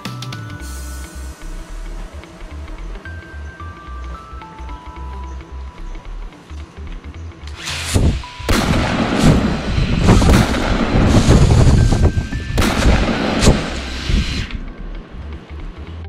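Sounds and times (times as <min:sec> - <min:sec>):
heavy low rumble: 0:00.8 - 0:07.3, 0:07.9 - 0:16.0
sharp cracks: 0:07.4 - 0:11.8, 0:12.6 - 0:14.7
bangs and booms: 0:07.9 - 0:14.4.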